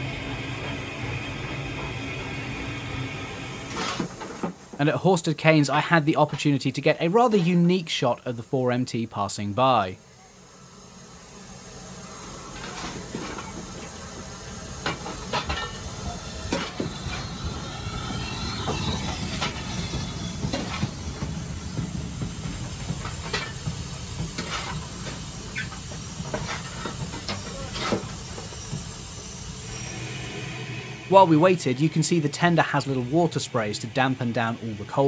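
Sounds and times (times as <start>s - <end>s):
steam hissing: 0.0s - 5.6s, 9.5s - 35.0s
train rumble: 0.0s - 6.8s, 10.4s - 35.0s.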